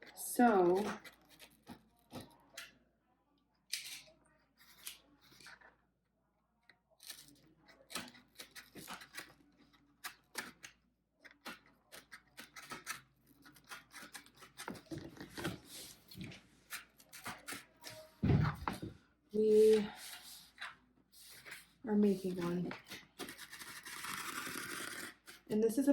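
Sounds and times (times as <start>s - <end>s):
cardboard being cut: 21.2s - 25.5s.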